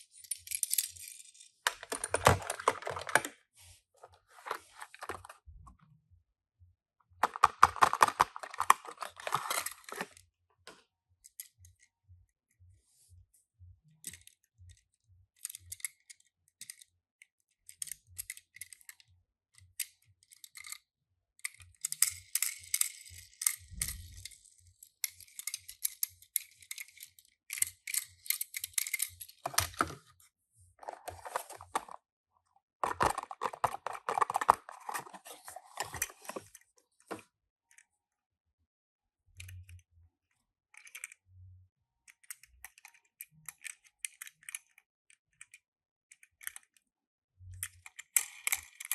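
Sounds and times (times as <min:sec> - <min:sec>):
packaging rustling: 0:01.7 - 0:03.3, 0:04.1 - 0:05.3, 0:07.2 - 0:10.1, 0:29.4 - 0:30.0, 0:30.8 - 0:32.0, 0:32.8 - 0:36.5.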